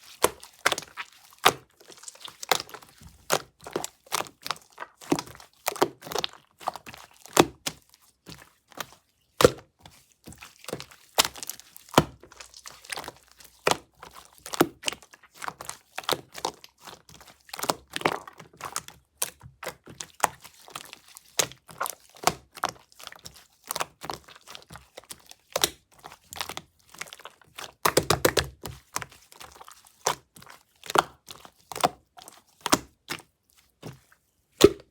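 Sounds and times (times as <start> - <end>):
slime crackling and popping: 0.2 - 7.8, 10.7 - 19.8, 26.4 - 31.4.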